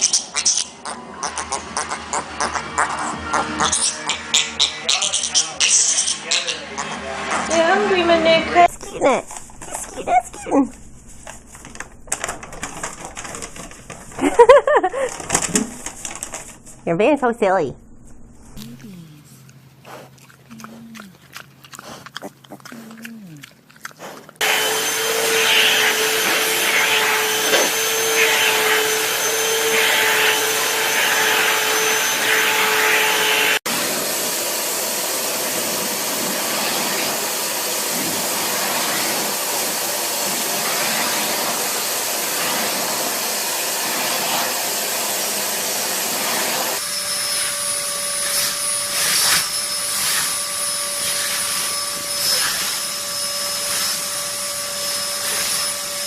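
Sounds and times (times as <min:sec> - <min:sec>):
electric motor whining with air hiss: 0:24.4 - 0:56.0.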